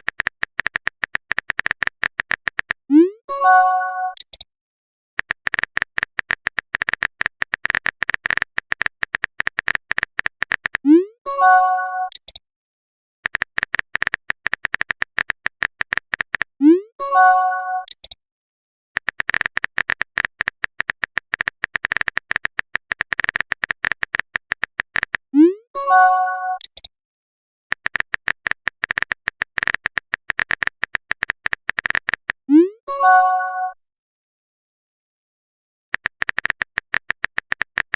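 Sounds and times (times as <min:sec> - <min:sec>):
phone keyboard taps: 0:00.0 - 0:02.8, 0:05.2 - 0:10.8, 0:13.3 - 0:16.5, 0:19.0 - 0:25.2, 0:27.7 - 0:32.4, 0:36.0 - 0:37.9.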